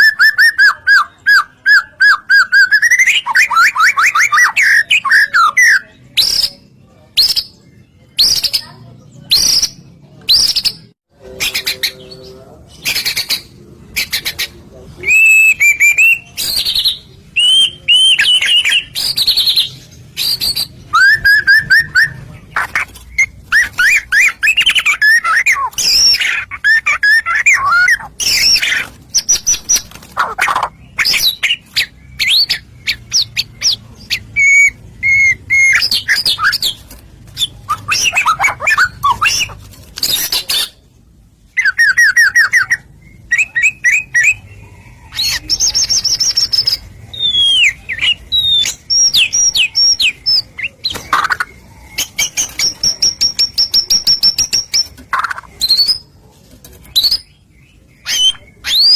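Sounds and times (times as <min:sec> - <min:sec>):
bird singing loudly: 0:00.0 - 0:07.5.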